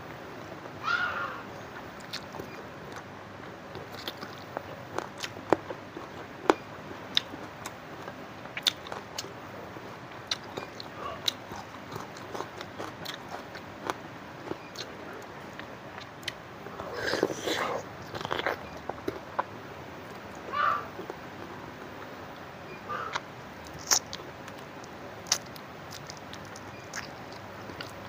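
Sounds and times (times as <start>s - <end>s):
chewing with mouth clicks and smacks: 2.0s - 9.3s, 10.2s - 19.5s, 23.1s - 28.0s.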